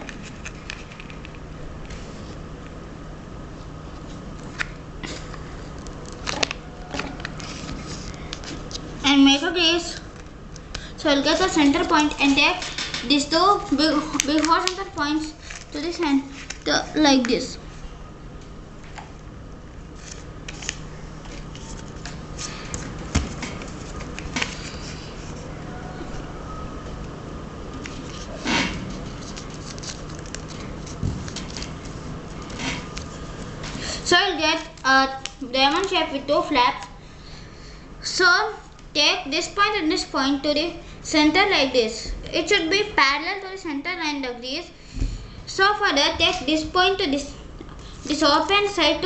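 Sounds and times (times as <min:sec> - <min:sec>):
paper crinkling as folded: 0:13.5 - 0:16.7, 0:20.0 - 0:25.4, 0:27.8 - 0:33.5.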